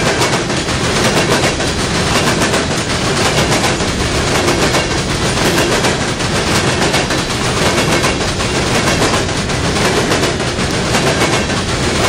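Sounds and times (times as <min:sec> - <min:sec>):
freight train rumbling past: 0:00.0 - 0:12.0
steel wheels clattering on rails: 0:00.0 - 0:12.0.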